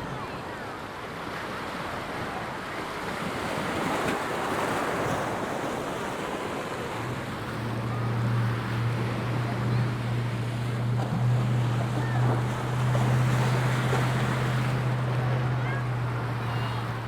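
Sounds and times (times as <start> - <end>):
surf washing onto beach: 0.0 - 17.0
low engine hum: 5.0 - 17.0.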